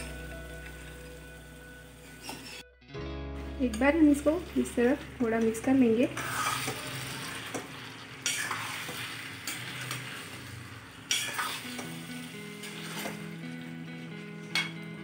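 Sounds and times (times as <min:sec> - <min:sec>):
spatula scraping pan: 0:02.0 - 0:02.6, 0:06.0 - 0:11.8
chicken sizzling in hot oil: 0:03.8 - 0:13.8.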